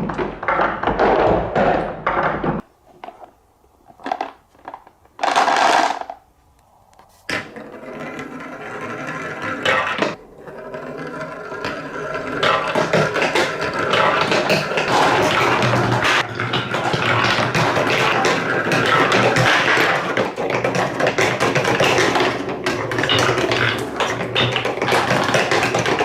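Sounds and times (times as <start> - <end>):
marbles rattling down plastic track: 5.2 - 6.2, 7.6 - 26.0.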